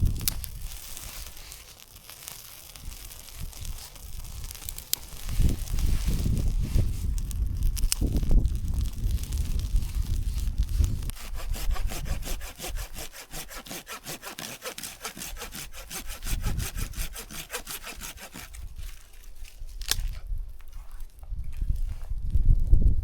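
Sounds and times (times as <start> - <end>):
hand saw cutting wood: 11.0 - 19.1.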